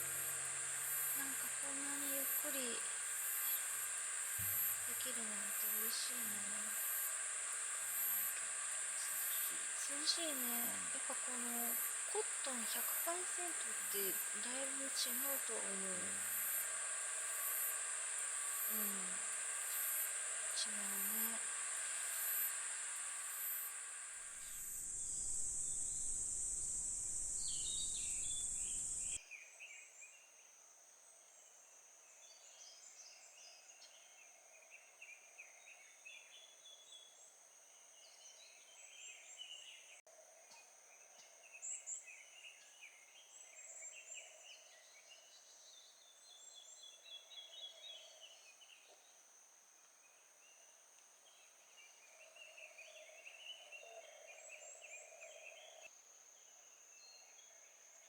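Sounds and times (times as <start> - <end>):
insect chirping calls: 0.0 - 29.2
insect drone: 0.0 - 29.7, 40.9 - 58.0.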